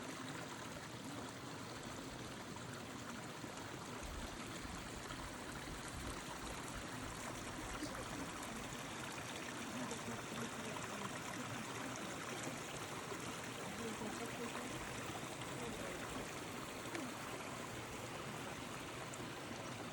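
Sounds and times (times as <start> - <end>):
stream water rushing: 0.0 - 19.9.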